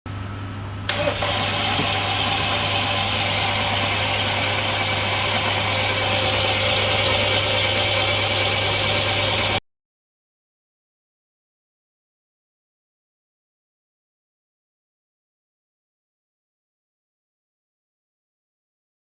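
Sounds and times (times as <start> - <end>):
starter motor cranking engine: 0.9 - 9.6.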